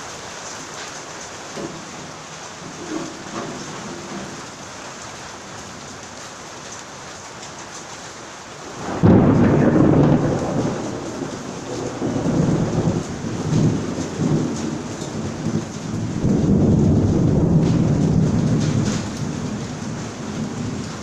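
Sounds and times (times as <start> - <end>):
steady rain: 0.0 - 21.0
thunder rumbling: 1.6 - 5.9, 8.6 - 21.0.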